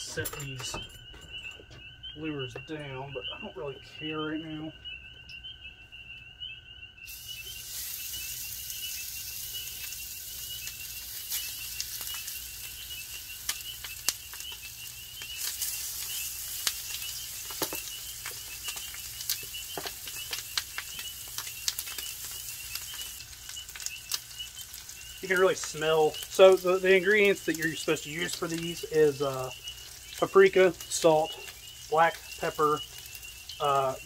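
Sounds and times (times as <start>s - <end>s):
chicken wings sizzling in a pan: 7.1s - 34.0s
pops and crackles: 7.1s - 34.0s.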